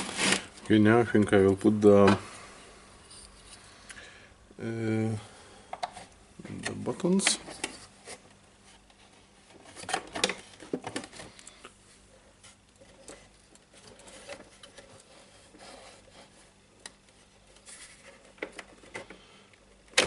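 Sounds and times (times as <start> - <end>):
plastic parts clicking and rustling: 8.9 - 11.7, 12.6 - 20.0.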